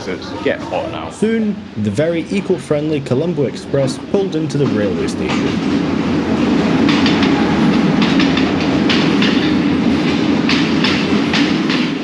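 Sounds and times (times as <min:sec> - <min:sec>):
train rumbling: 0:00.0 - 0:12.0
train wheels clacking on rail joints: 0:02.6 - 0:12.0.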